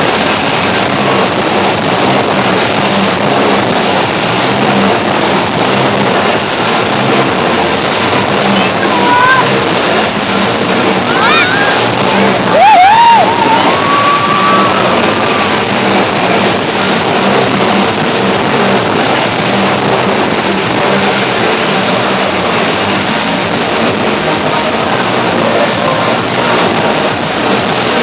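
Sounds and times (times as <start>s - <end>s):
motorcycle engines at high revs: 0.0s - 12.5s.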